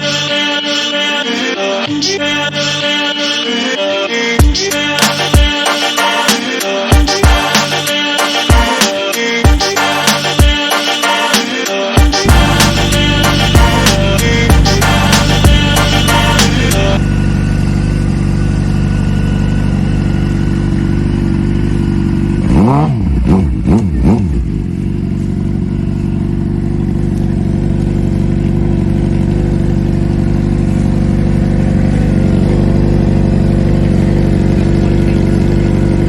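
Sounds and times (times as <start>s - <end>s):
motorcycle engine idling and revving: 12.0s - 36.0s.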